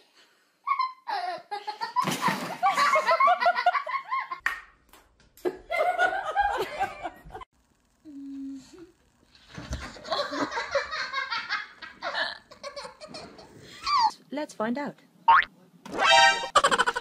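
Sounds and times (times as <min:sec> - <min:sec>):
people laughing: 0:05.5 - 0:07.4, 0:09.9 - 0:13.5.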